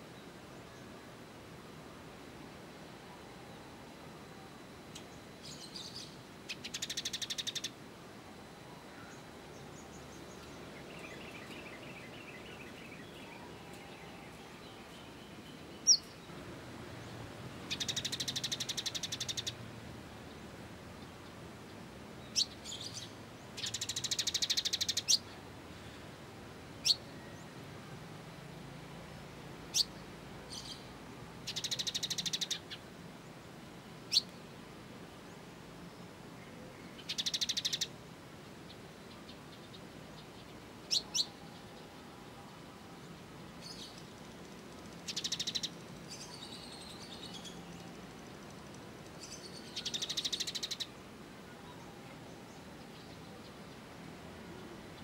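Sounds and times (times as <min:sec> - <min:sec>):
faint background hiss: 0:00.0 - 0:55.0
buzzy rattling bird trills: 0:05.5 - 0:07.7, 0:17.7 - 0:19.6.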